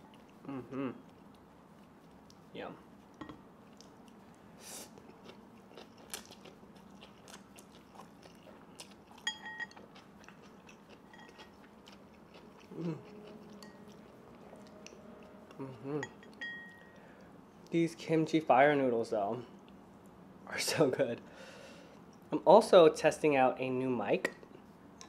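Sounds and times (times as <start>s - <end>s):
person humming mm: 0.4s - 1.1s, 12.7s - 13.6s, 14.6s - 16.2s
person chewing crunchy food: 3.6s - 16.2s.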